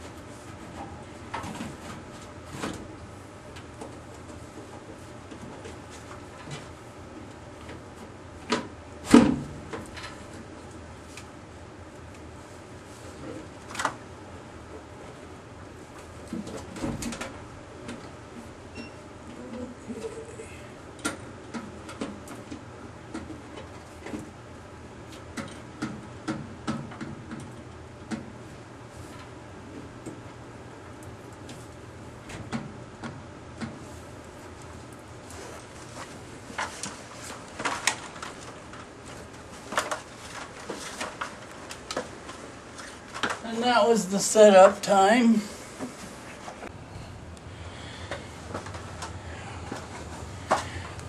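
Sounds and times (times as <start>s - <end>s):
low hum: 45.5s - 51.0s.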